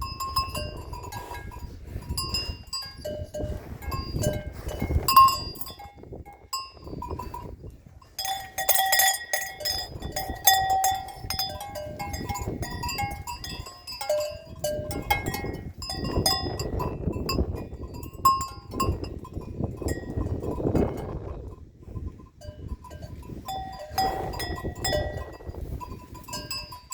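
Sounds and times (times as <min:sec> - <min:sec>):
cattle bells clanking: 0:00.0 - 0:26.9.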